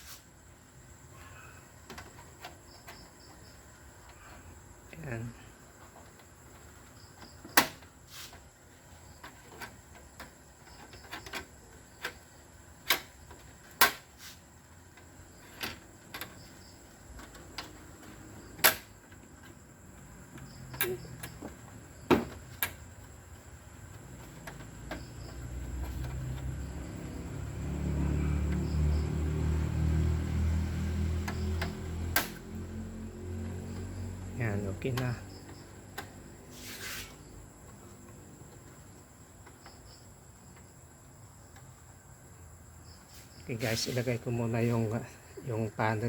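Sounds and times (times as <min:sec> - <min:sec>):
sharp clicks and taps of parts: 0:14.9 - 0:19.6, 0:23.8 - 0:26.6, 0:31.2 - 0:32.6.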